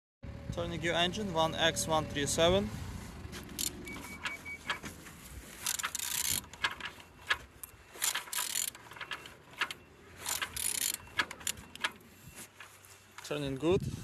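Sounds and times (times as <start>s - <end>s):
ratchet wrench clicking: 3.5s - 4.8s, 5.6s - 7.4s, 8.0s - 12.0s.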